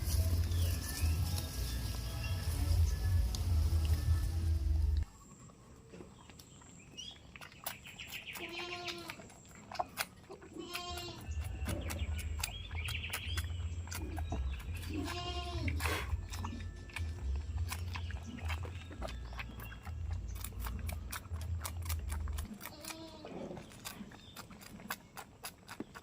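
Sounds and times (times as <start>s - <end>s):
goats bleating: 8.4s - 9.2s, 10.6s - 11.3s, 14.9s - 15.8s, 22.7s - 23.5s.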